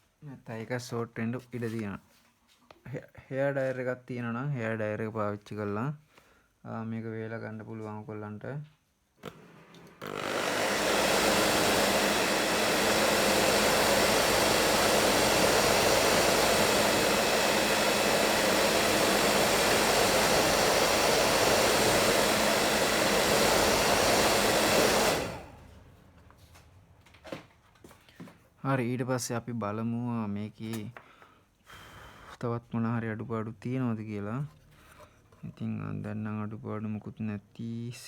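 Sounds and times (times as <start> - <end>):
hair dryer blowing: 9.3 - 25.9.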